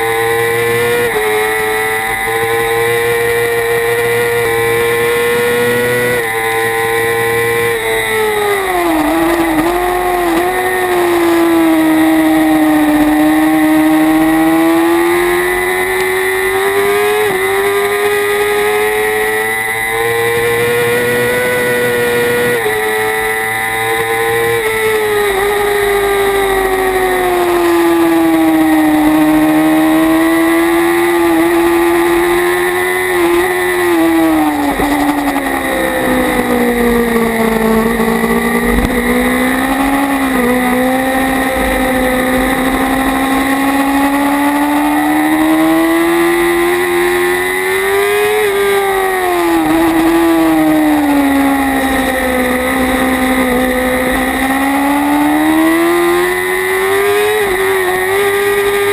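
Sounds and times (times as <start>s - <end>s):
motorcycle engine at racing revs: 0.0s - 58.9s
wind rushing over microphone: 34.3s - 44.3s.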